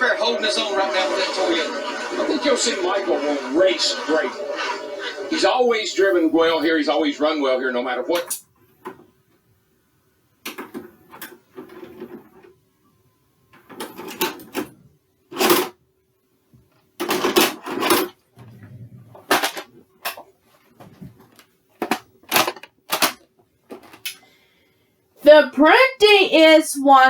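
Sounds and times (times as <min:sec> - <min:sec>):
faint steady hum: 0:00.0 - 0:27.0
objects clicking and clunking: 0:10.4 - 0:12.6, 0:13.5 - 0:15.8, 0:16.7 - 0:18.6, 0:19.2 - 0:24.3.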